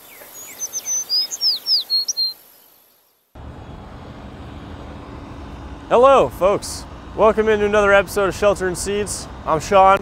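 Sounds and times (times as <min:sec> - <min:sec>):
bird chirping: 0:00.0 - 0:03.2
highway traffic rumble: 0:03.3 - 0:10.0.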